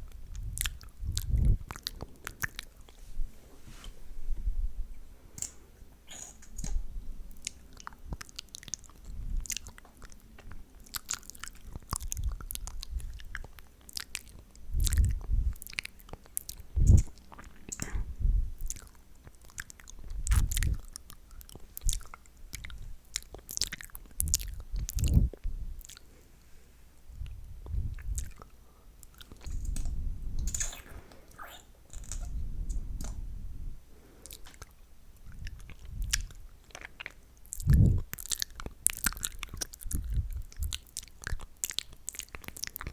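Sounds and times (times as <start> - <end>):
wet lip and tongue smacks: 18.6 - 26.0.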